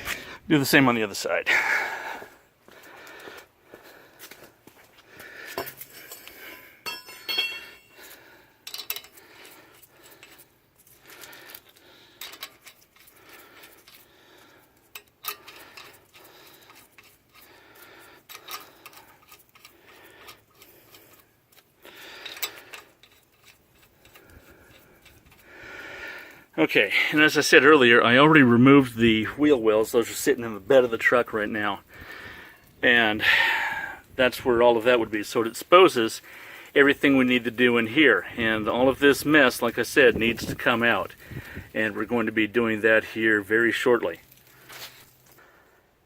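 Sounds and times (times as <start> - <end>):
metal lug nuts clinking: 5.5 - 10.9, 11.6 - 14.1, 14.7 - 25.5.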